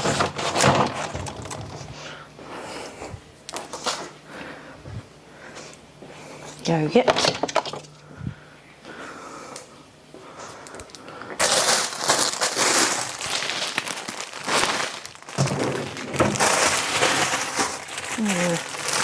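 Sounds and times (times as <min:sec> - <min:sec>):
plastic packaging crinkling: 0:10.6 - 0:19.0.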